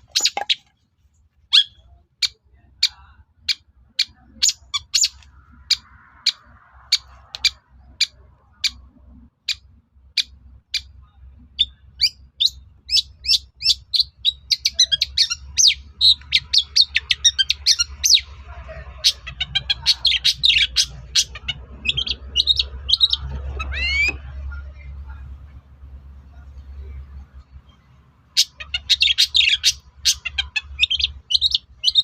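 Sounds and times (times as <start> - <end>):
bird calling and chattering: 0.0 - 0.8, 1.5 - 11.0, 11.6 - 24.4, 27.6 - 32.0.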